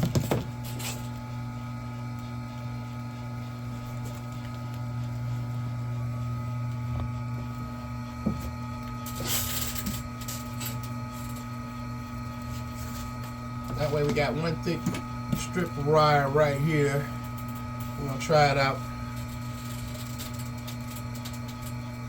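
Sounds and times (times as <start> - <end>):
machine motor humming: 0.0 - 22.0.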